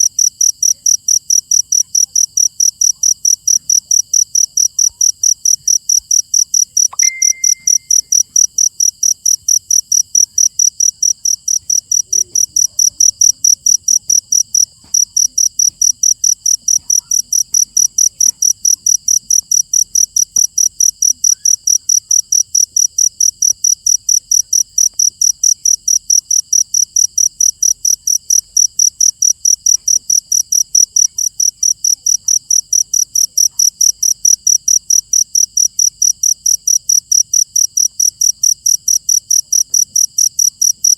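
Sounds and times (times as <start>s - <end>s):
cricket chirping: 0.0s - 40.9s
short steady tone: 6.9s - 8.2s.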